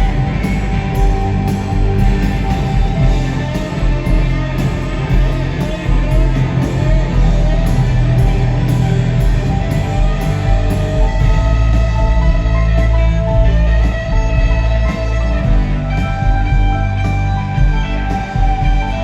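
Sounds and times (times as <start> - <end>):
electric guitar: 0.0 - 19.0
live rock band playing: 0.0 - 19.0.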